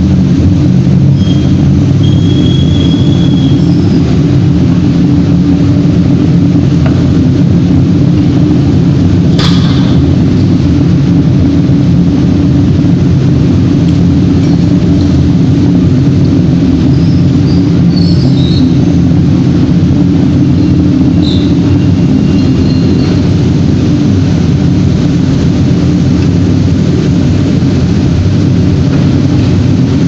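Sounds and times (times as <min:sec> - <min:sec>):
industrial machinery rumble: 0:00.0 - 0:30.0
faint high whistle: 0:01.2 - 0:04.0.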